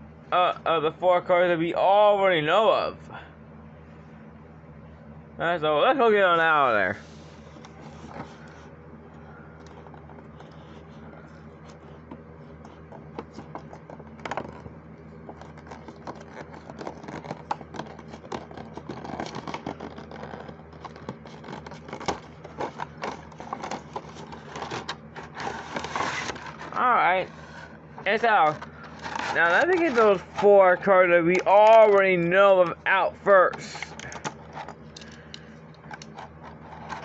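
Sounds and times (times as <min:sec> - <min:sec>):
steady low hum: 0:00.0 - 0:37.0
toy packaging scraping and clicking: 0:09.5 - 0:32.8, 0:33.5 - 0:37.0.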